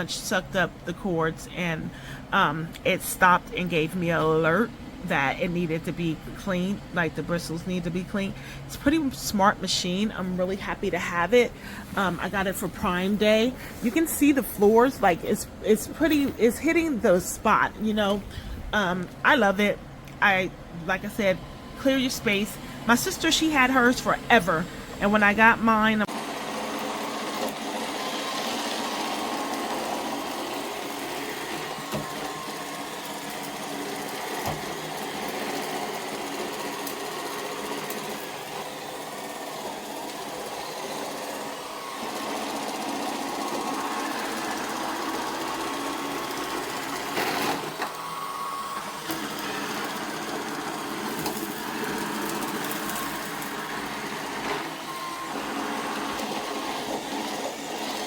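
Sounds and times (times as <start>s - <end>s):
robot vacuum whirring: 21.0s - 58.0s.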